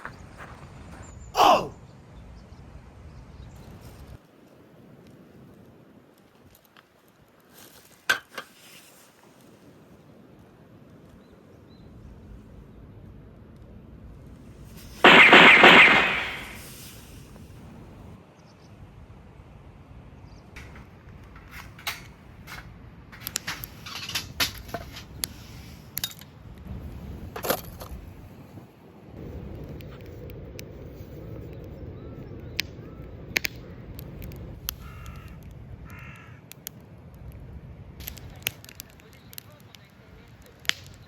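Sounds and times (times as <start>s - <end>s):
sharp clicks and crackles: 3.6s - 8.8s, 20.6s - 28.0s, 29.2s - 41.0s
crow cawing: 34.8s - 36.5s.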